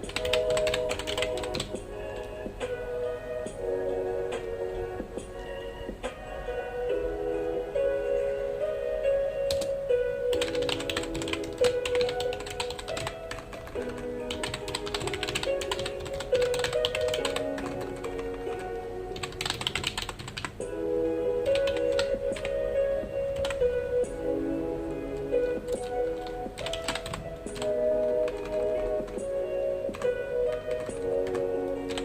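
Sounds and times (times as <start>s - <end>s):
computer keyboard typing: 0.0s - 2.4s, 9.5s - 9.7s, 10.3s - 20.6s, 21.4s - 22.6s, 23.3s - 23.7s, 25.3s - 32.0s
soft background music: 0.0s - 32.0s.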